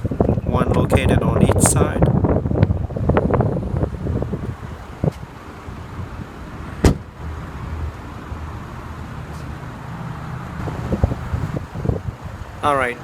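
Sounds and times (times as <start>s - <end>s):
seatback latch clicks: 6.8s - 7.0s.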